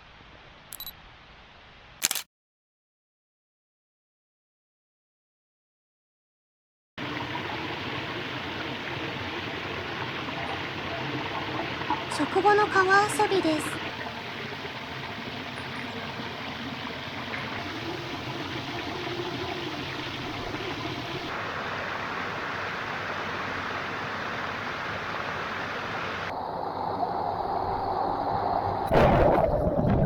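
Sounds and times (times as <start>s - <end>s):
water rushing over rocks: 7.0s - 26.3s.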